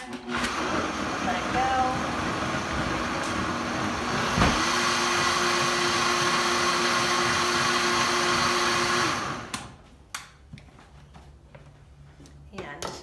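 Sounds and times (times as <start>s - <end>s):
blender whirring: 0.2s - 9.8s.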